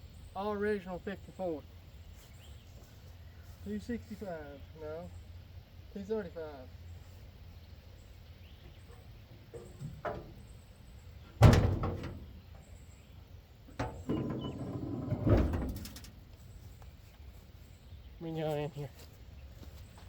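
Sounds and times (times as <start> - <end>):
truck door clunking: 8.9 - 10.5, 11.3 - 12.6, 13.7 - 16.3
door rattling: 9.5 - 10.5, 11.3 - 12.5, 13.7 - 16.3.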